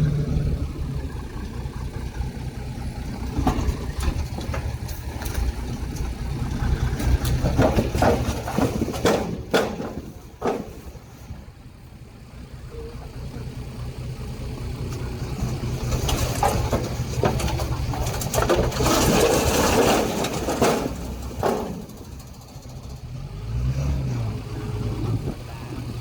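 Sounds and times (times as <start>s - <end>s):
engine revving: 0.0s - 4.5s, 22.6s - 26.0s
diesel engine running: 0.0s - 26.0s
noisy clattering with knocks: 3.0s - 11.4s, 14.9s - 23.0s.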